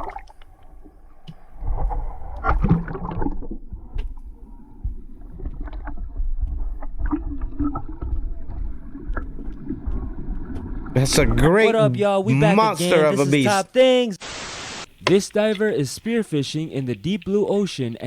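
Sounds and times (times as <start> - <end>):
water splashes: 0.0 - 0.9, 1.6 - 3.8, 5.1 - 11.5, 14.2 - 18.0
water sloshing: 15.0 - 17.8.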